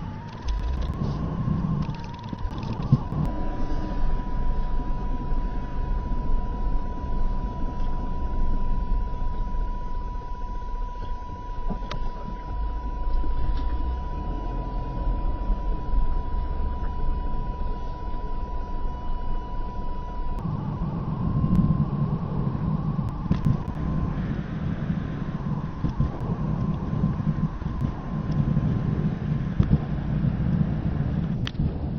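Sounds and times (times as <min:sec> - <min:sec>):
low rumble: 0:00.0 - 0:31.9
radio interference hiss: 0:00.0 - 0:31.9.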